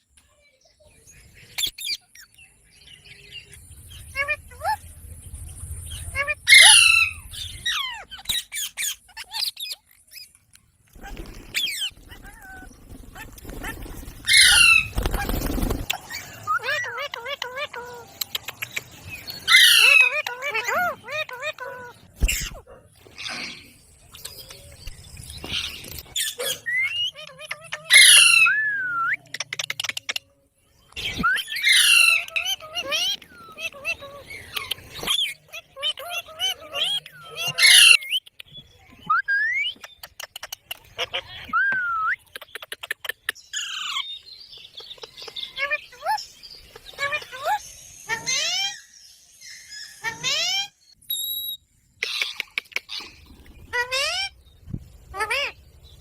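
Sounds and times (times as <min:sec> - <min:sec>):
parrot chirping and squawking: 0:05.9 - 0:09.9, 0:11.0 - 0:24.5, 0:25.5 - 0:28.6, 0:31.3 - 0:38.2, 0:49.5 - 0:51.2, 0:52.0 - 0:54.4, 0:55.1 - 0:55.6
parrot whistled chirps: 0:49.5 - 0:51.6.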